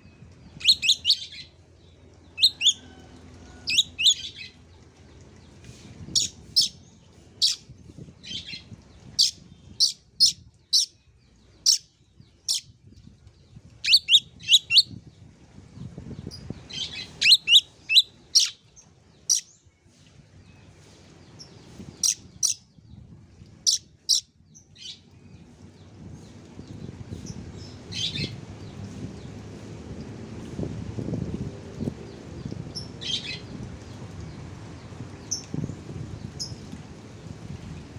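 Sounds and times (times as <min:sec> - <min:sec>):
bird chirping: 0:00.6 - 0:01.4, 0:09.2 - 0:11.0, 0:11.6 - 0:11.8, 0:16.8 - 0:18.6, 0:19.3 - 0:19.5, 0:22.0 - 0:22.6, 0:23.7 - 0:24.2.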